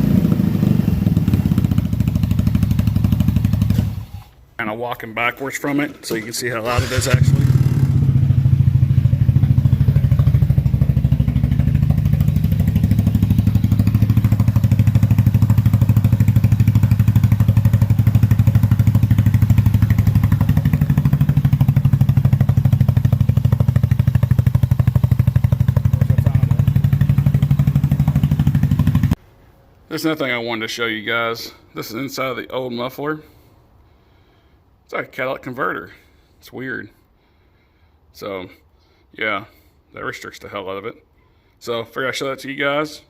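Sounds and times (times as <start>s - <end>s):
engine idling with loud exhaust: 6.6s - 29.2s.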